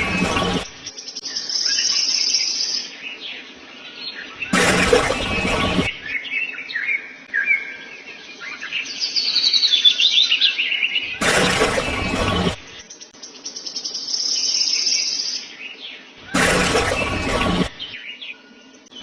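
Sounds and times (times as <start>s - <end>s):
noisy bursts: 0.0s - 0.9s, 4.4s - 6.1s, 11.1s - 12.8s, 16.2s - 18.0s
small birds chirping: 0.0s - 19.0s.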